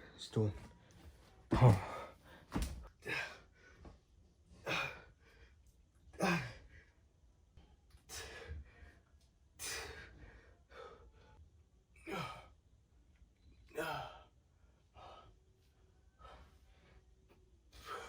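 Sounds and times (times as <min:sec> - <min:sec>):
faint breaths: 0:08.0 - 0:11.5, 0:13.8 - 0:18.0.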